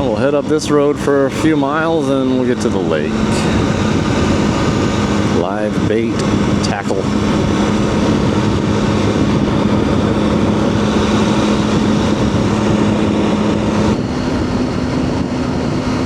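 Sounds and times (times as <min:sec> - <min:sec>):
motorcycle engine running: 0:00.0 - 0:16.0
road noise: 0:00.0 - 0:16.0
wind noise: 0:00.0 - 0:16.0.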